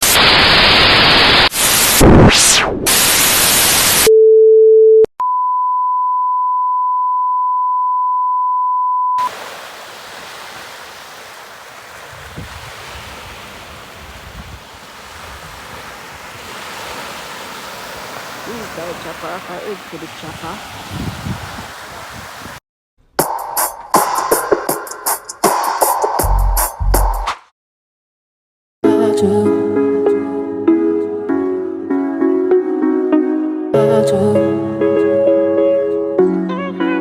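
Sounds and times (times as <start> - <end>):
outdoor hiss: 0.0 - 2.0, 9.2 - 21.0
static hiss with glitch: 0.0 - 4.1.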